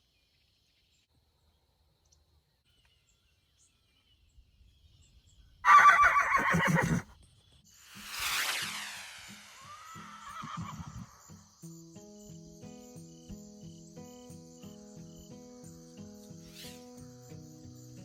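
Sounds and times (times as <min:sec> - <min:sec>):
horse whinnying: 0:05.7 - 0:07.1, 0:10.2 - 0:11.2
rising whoosh: 0:08.0 - 0:10.3.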